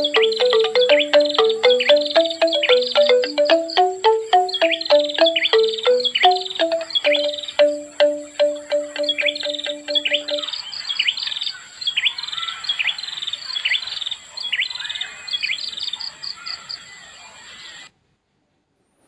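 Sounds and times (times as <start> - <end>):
bamboo percussion music: 0.0 - 10.5
steady high tone: 0.0 - 10.5
songbird whistling and calling: 0.0 - 13.0.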